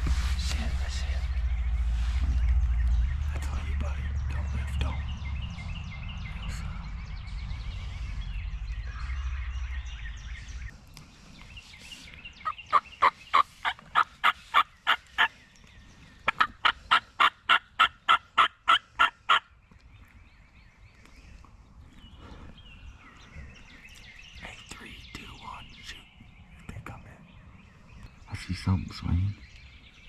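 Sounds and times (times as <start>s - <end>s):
wild turkey yelps: 16.3s - 19.4s.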